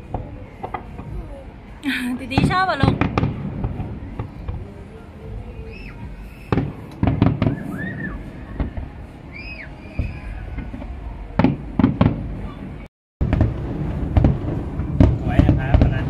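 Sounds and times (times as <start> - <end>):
fireworks bangs and crackles: 0.0 - 16.0
low rumble: 7.6 - 16.0.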